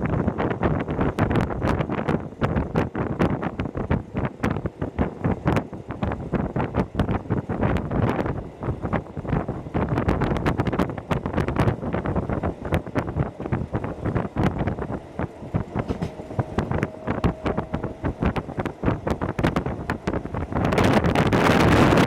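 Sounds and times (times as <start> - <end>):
train wheel and rail noise: 0.0 - 22.0
wind buffeting microphone: 0.0 - 22.0
steady tone: 11.0 - 22.0
rattling: 13.4 - 21.6.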